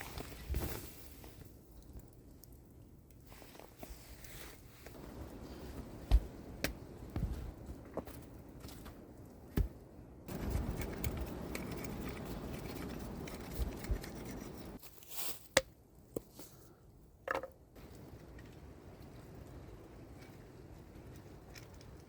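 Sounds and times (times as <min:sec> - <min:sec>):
scraping and rustling: 0:10.3 - 0:15.5.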